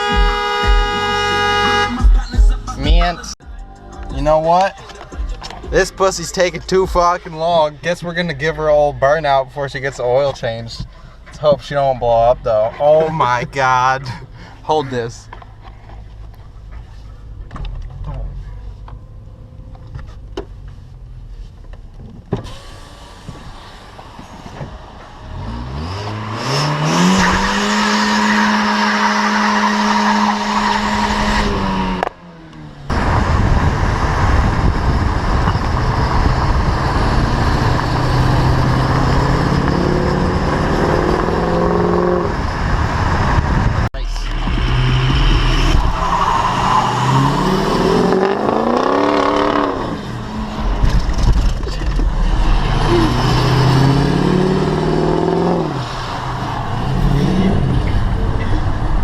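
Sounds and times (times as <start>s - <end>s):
car engine revving hard: 25.2s - 32.1s, 32.9s - 59.0s.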